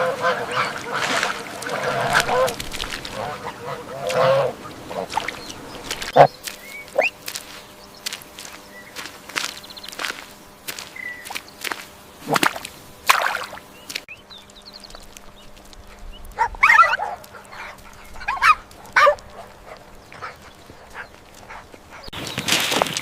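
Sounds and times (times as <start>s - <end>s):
animal yelping: 6.9s - 7.2s, 16.4s - 19.2s.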